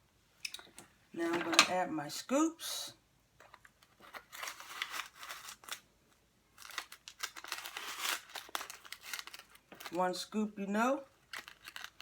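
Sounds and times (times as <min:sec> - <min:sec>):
paper rustling: 0:06.6 - 0:10.0.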